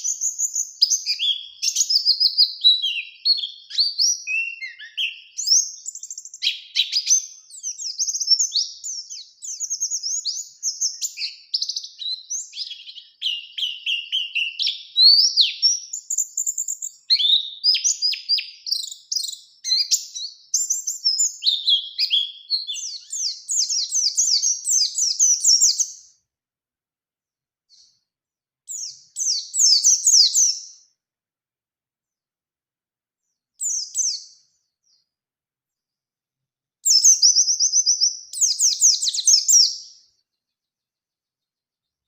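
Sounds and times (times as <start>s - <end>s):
bird chirping and trilling: 0.0s - 26.2s, 28.7s - 30.8s, 33.6s - 35.0s, 36.8s - 40.2s.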